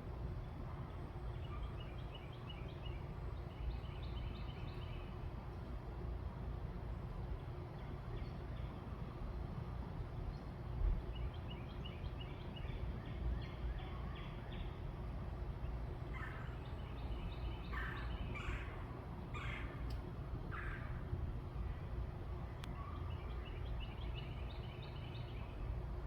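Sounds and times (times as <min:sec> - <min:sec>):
low background rumble: 0:00.0 - 0:26.0
birds calling: 0:15.6 - 0:21.5.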